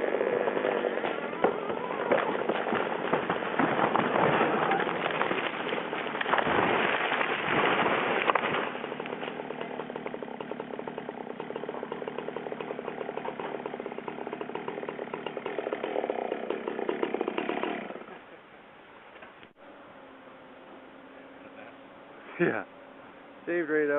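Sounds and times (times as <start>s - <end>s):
chainsaw cutting tree: 0.0s - 18.2s.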